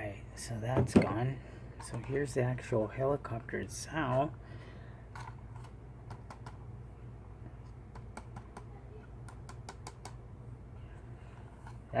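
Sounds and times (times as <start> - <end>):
steady low hum: 0.0 - 12.0
clicks and taps on plastic: 7.9 - 10.2.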